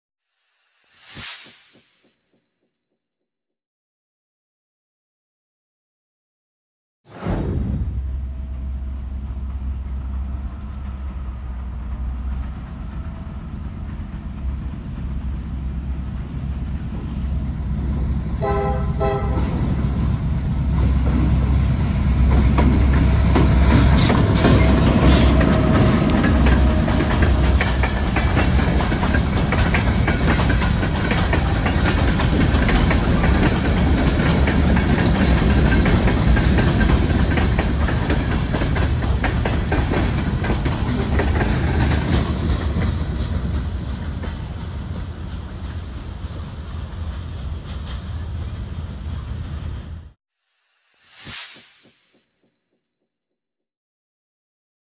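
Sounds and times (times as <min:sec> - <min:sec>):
diesel locomotives rumbling: 0:08.0 - 0:50.2
train wheels clattering on rails: 0:09.0 - 0:49.9
train horn blast: 0:18.4 - 0:19.6.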